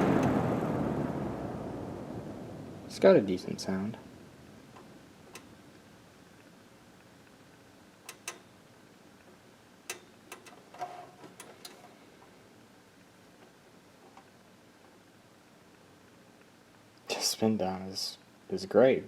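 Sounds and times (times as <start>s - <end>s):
box fan whirring: 0.0s - 16.8s.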